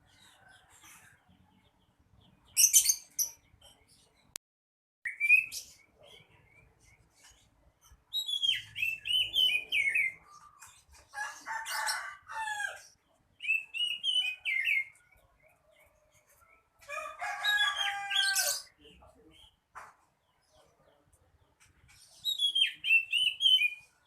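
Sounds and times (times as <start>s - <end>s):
bird singing whistled phrases: 5.1s - 5.7s, 8.1s - 10.2s, 22.2s - 23.9s
harsh bird calls: 5.1s - 24.0s.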